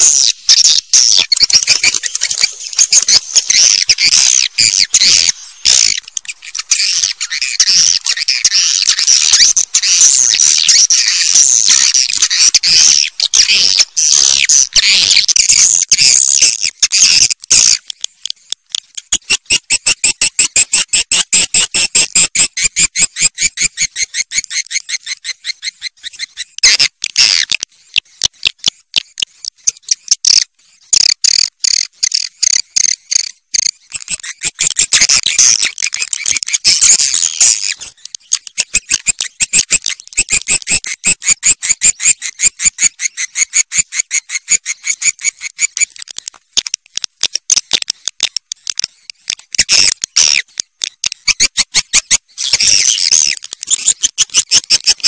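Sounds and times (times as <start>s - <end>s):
swiftlet clicking chirps: 33.6s - 46.1s.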